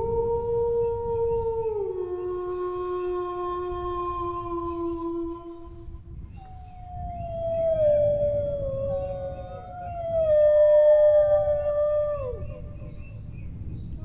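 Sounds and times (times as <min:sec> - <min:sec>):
low rumble: 0:00.0 - 0:14.0
dogs howling: 0:06.6 - 0:13.1.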